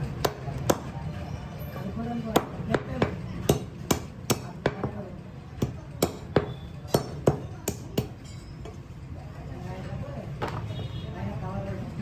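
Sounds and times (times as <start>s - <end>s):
knife chopping on a block: 0.0s - 1.0s, 2.3s - 5.0s, 5.6s - 8.2s.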